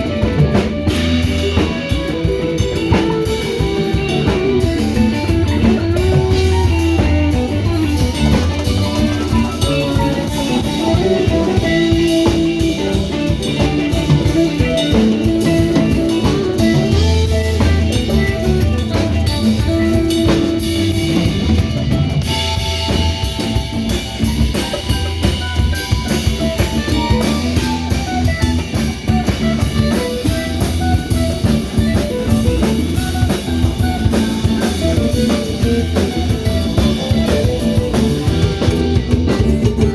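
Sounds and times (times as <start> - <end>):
drum kit beat with rimshots: 0.0 - 39.9
electric guitar lines: 0.0 - 39.9.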